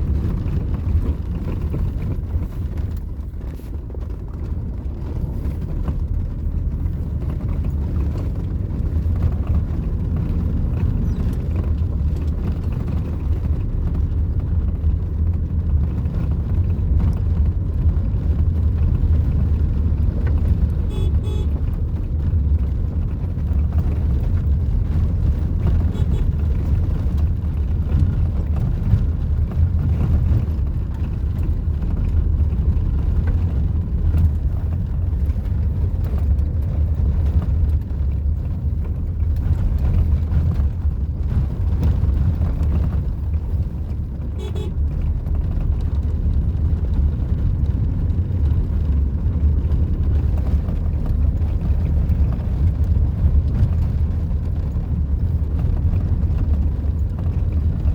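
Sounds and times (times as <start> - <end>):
vehicle rumbling: 0.0 - 57.9
horn toot: 20.9 - 21.6, 44.4 - 44.8.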